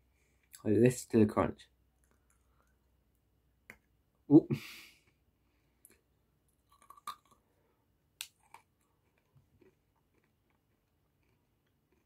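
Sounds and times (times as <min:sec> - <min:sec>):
hard candy crunching: 0:06.6 - 0:07.5, 0:08.2 - 0:12.0.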